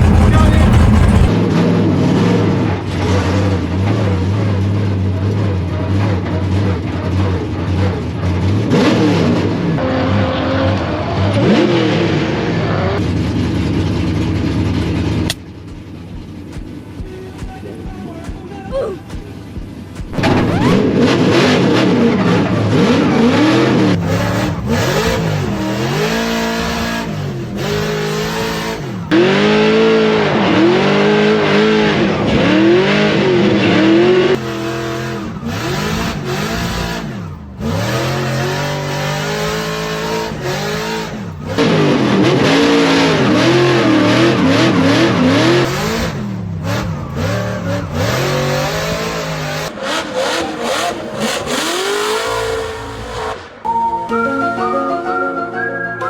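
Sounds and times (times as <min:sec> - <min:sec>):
car engines revving: 0:00.0 - 0:53.7.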